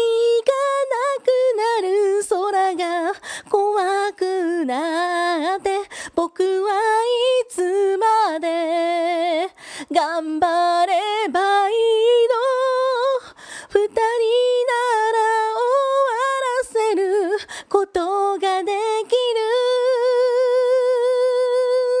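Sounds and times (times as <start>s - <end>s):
woman singing a cappella: 0.0s - 22.0s
breaths between phrases: 3.2s - 3.5s, 5.9s - 6.2s, 9.6s - 9.9s, 13.2s - 13.7s.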